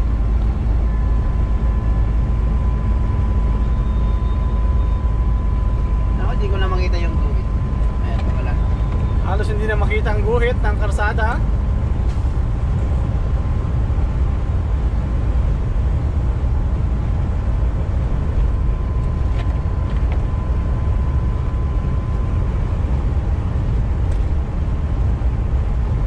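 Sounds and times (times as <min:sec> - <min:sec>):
faint steady whine: 0:00.0 - 0:26.0
truck engine and tyres rumbling: 0:00.0 - 0:26.0.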